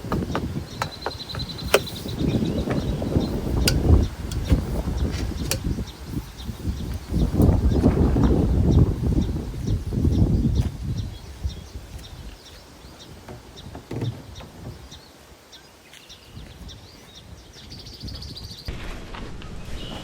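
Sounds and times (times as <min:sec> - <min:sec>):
small songbirds chirping: 0:00.0 - 0:18.7.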